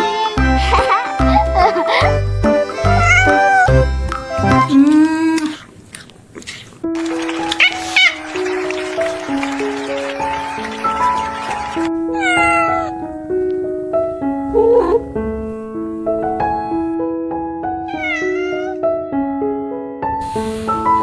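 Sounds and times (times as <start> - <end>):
gentle keyboard melody: 0.0 - 4.9, 6.9 - 18.0
kitten meowing: 2.7 - 3.8, 7.5 - 8.3, 12.1 - 13.1, 14.5 - 15.1, 17.9 - 18.8.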